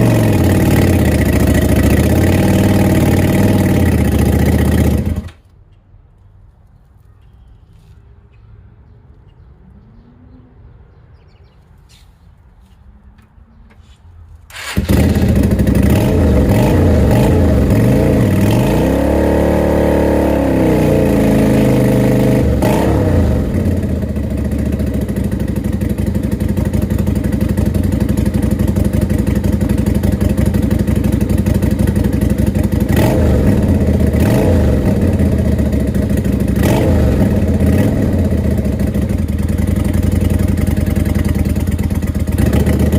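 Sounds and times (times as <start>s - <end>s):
motorcycle engine revving: 0.0s - 5.4s, 14.5s - 42.9s.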